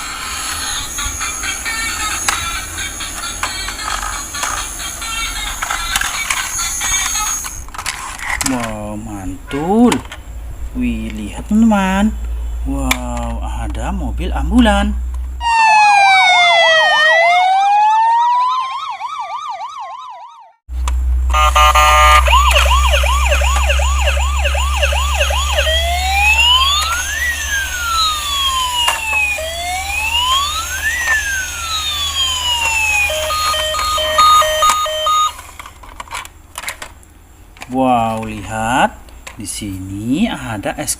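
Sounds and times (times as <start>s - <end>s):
toy electronic siren: 0.0s - 7.6s, 15.4s - 20.6s, 21.3s - 35.5s
low hum: 20.7s - 36.0s
steady beeps: 21.4s - 28.3s, 31.6s - 35.4s.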